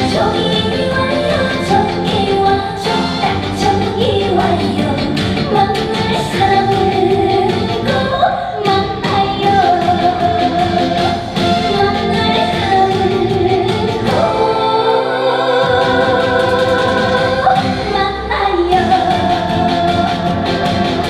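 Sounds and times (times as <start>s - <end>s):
woman singing: 0.0s - 21.0s
band backing track with drums: 9.8s - 14.2s.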